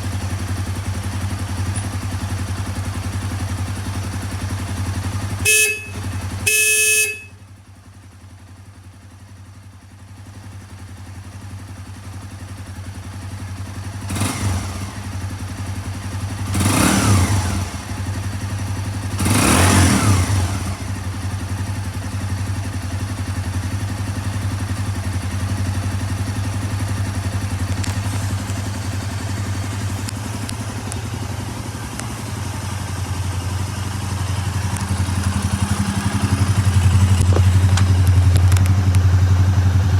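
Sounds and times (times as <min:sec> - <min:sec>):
motorcycle engine idling: 0:00.0 - 0:39.9
motorcycle horn beeps: 0:05.1 - 0:07.6
engine revving: 0:14.1 - 0:15.0, 0:16.4 - 0:17.9, 0:19.1 - 0:20.9.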